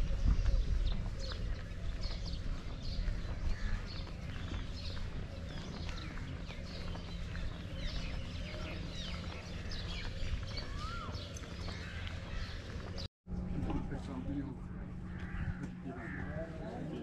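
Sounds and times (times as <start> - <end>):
birds chirping: 0.0 - 13.1.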